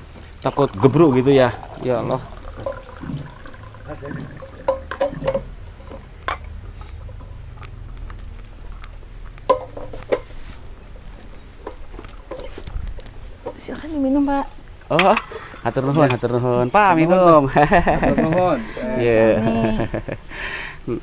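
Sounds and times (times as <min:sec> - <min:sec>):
water being poured: 0:00.0 - 0:05.5
glasses clinking and knocking: 0:00.2 - 0:06.5, 0:14.9 - 0:16.4.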